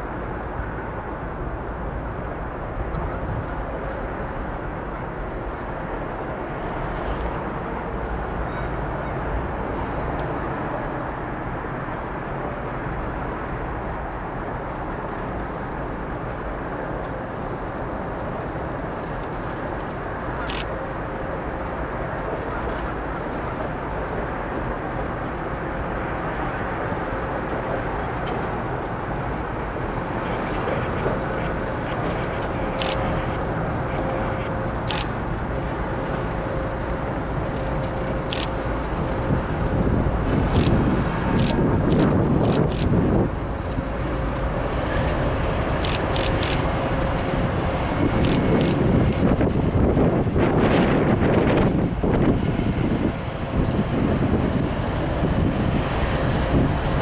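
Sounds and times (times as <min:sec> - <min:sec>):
distant freight train rumble: 0:00.0 - 0:57.0.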